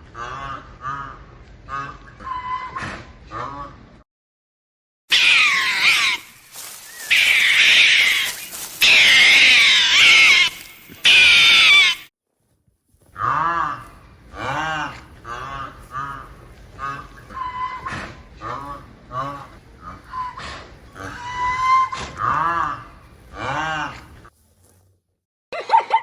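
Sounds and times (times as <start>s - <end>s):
animal calls with wavering pitch: 14.4s - 24.0s.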